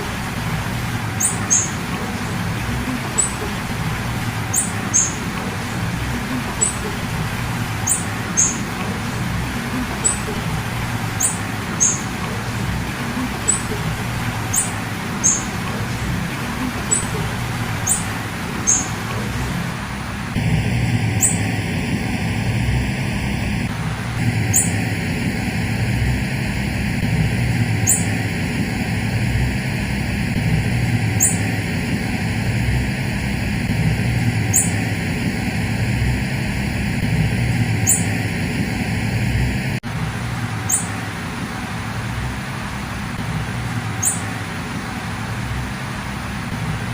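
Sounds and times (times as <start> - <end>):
low background rumble: 0.0 - 46.9
bird high call notes: 1.1 - 3.8, 4.4 - 9.0, 9.7 - 19.3, 21.2 - 21.5, 24.5 - 24.8, 40.7 - 41.0, 44.0 - 44.3.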